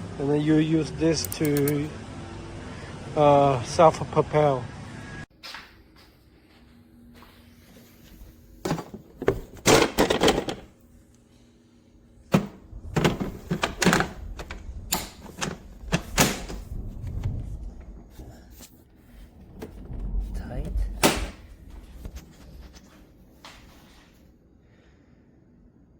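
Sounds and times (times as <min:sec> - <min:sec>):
mower handle and controls rattling: 0:08.6 - 0:10.7, 0:12.3 - 0:16.7.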